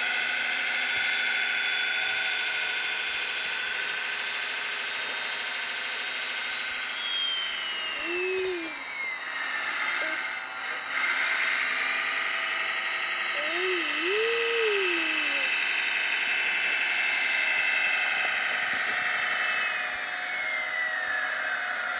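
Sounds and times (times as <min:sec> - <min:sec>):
high-pitched electric motor whine: 0:00.0 - 0:21.9
short low rise-and-fall tone: 0:07.0 - 0:09.2.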